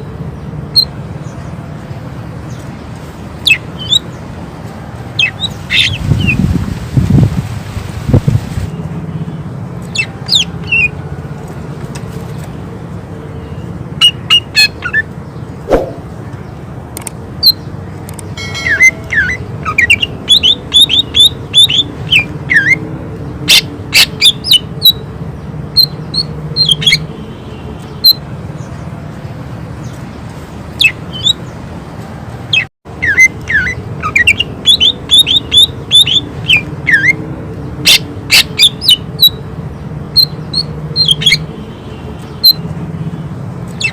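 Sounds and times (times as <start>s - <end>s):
bird singing whistled notes: 18.4s - 22.8s.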